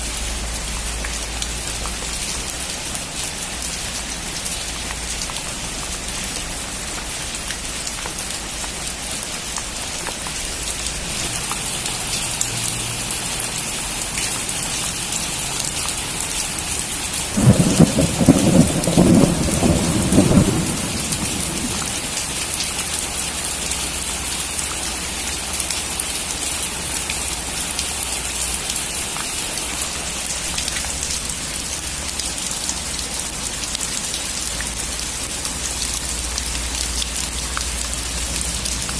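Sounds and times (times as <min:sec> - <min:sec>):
steady rain: 0:00.0 - 0:38.9
rolling thunder clap: 0:17.3 - 0:22.2.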